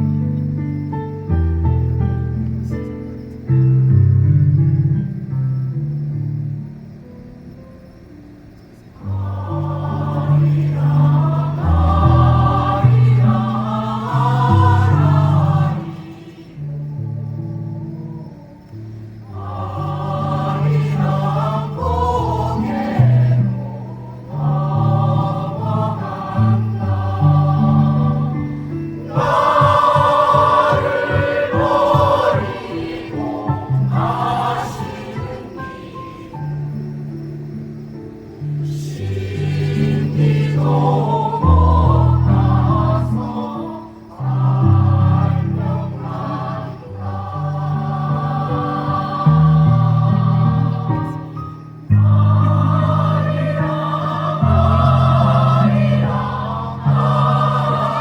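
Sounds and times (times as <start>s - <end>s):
choir singing: 8.8s - 58.0s.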